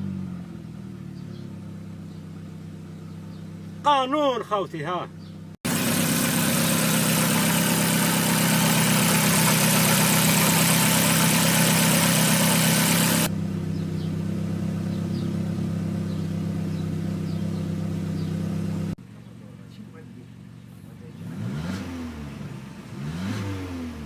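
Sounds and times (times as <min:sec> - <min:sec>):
car engine idling: 0:00.5 - 0:04.0, 0:04.7 - 0:21.3
loud steady hiss: 0:05.7 - 0:13.3.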